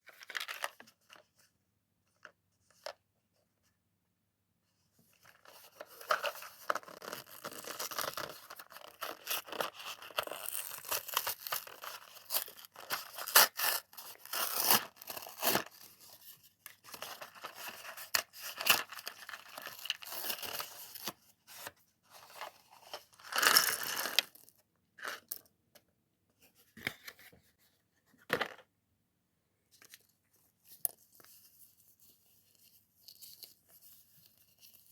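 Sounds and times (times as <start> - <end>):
packaging tearing and rustling: 5.8 - 15.9.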